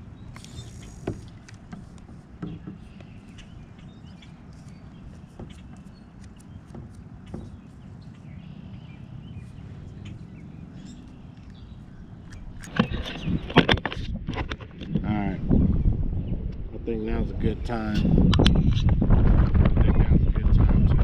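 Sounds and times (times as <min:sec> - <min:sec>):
knocking and scraping: 0:00.7 - 0:03.5, 0:04.5 - 0:05.9, 0:06.7 - 0:07.7.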